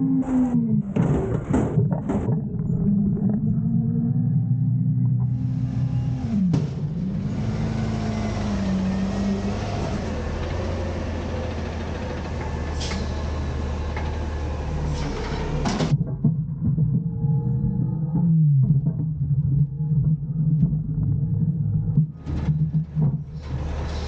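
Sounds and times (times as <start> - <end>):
garbage truck engine revving: 2.1 - 16.0, 22.1 - 24.0.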